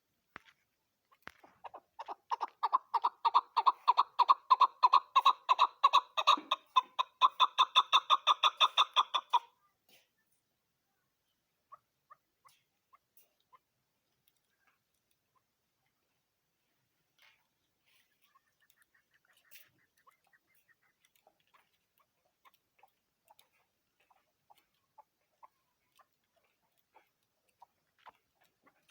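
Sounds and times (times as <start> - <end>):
partridge clucks and clicks: 1.1 - 9.4, 18.1 - 28.9
partridge clucking notes: 1.3 - 9.4.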